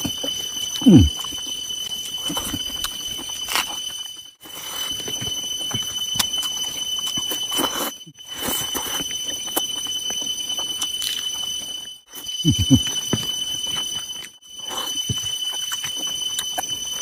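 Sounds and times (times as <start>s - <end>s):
person chewing food: 0.0s - 3.8s, 4.4s - 5.2s, 5.8s - 10.2s, 10.8s - 11.2s, 13.7s - 17.0s
high-pitched whine: 0.0s - 17.0s.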